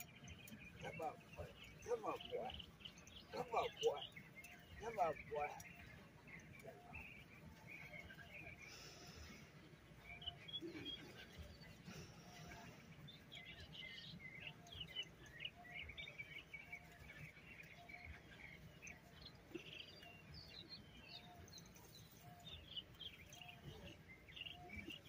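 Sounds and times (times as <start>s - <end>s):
faint birds chirping: 0.0s - 25.0s.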